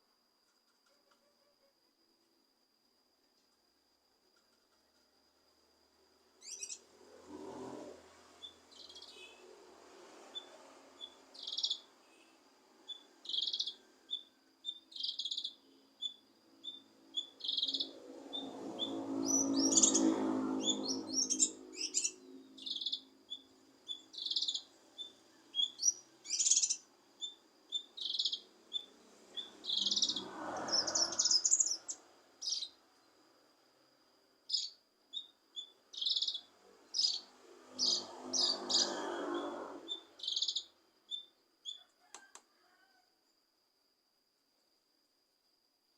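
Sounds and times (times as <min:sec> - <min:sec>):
bird chirping and trilling: 0:06.4 - 0:06.8, 0:08.4 - 0:09.4, 0:10.4 - 0:12.3, 0:12.9 - 0:32.8, 0:34.5 - 0:41.3.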